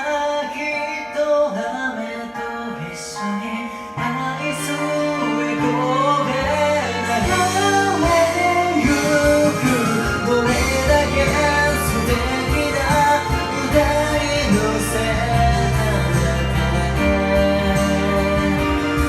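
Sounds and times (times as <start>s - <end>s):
song with melodic line: 0.0s - 19.0s
bass line: 4.3s - 19.0s.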